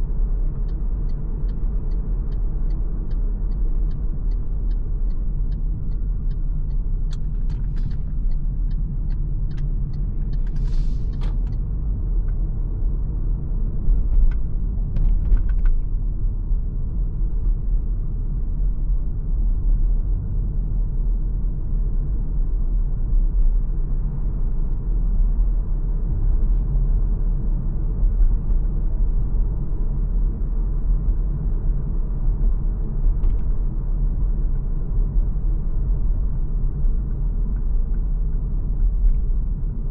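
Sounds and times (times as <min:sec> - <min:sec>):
tyres and drivetrain rumble: 0:00.0 - 0:18.6.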